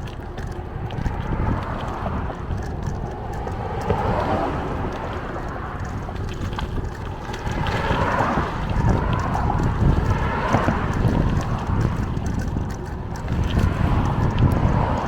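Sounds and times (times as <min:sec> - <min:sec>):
bicycle rolling: 0:00.0 - 0:15.0
wind rushing over microphone: 0:00.0 - 0:15.0.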